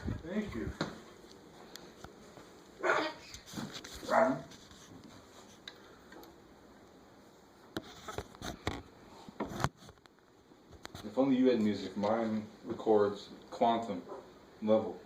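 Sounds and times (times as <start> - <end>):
dog-like yelps: 2.8 - 3.4, 4.1 - 4.5.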